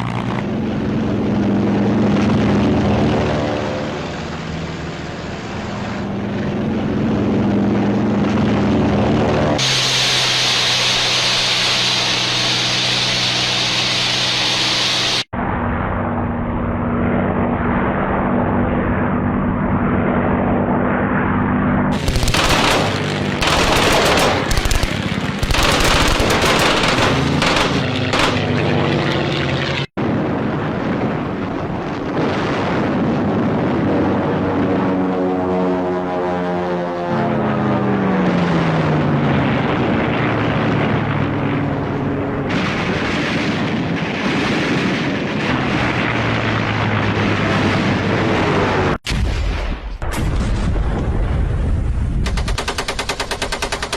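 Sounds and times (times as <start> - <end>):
engine drone: 0.0 - 49.0
rapid gunfire: 21.9 - 28.5, 52.2 - 53.9.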